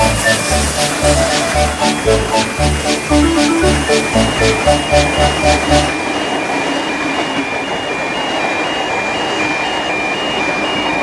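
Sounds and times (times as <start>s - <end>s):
music: 0.0s - 6.0s
two-tone electronic warning alarm: 0.0s - 11.0s.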